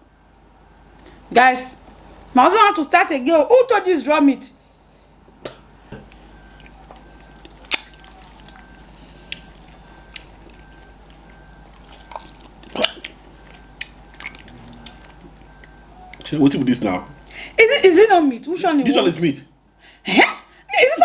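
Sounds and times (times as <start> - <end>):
low room hum: 0.0 - 21.0
wet mouth clicks and smacks: 6.1 - 16.3.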